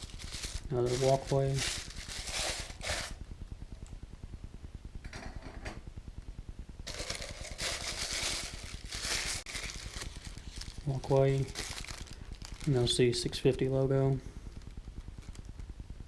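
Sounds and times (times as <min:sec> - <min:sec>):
plastic packaging crinkling: 0:00.0 - 0:03.2, 0:06.9 - 0:13.8, 0:14.5 - 0:15.6
low steady hum: 0:00.0 - 0:16.0.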